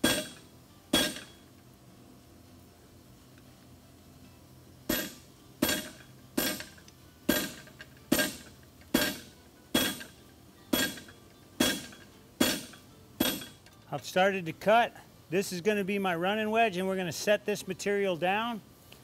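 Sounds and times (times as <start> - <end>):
hammer striking steel on anvil: 0.0 - 1.4, 4.9 - 13.6.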